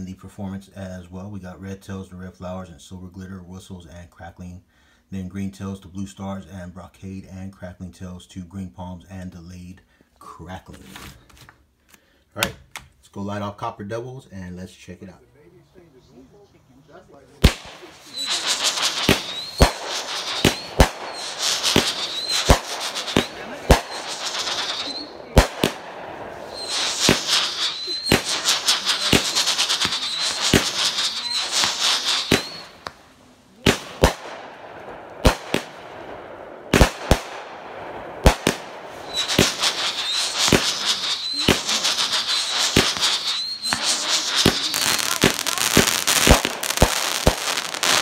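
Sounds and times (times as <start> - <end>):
firework crackling: 17.0 - 48.0
firework launch shots and bursts: 17.4 - 48.0
firework whistles: 17.4 - 48.0.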